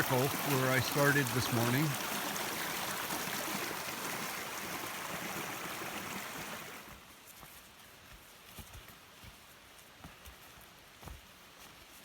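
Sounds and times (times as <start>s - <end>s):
river rushing: 0.0s - 6.9s.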